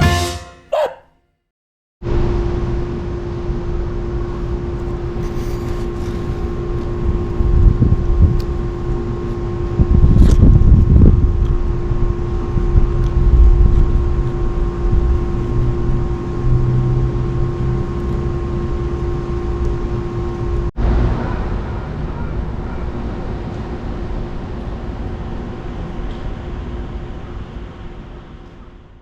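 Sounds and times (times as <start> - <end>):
wind buffeting microphone: 9.7 - 11.7.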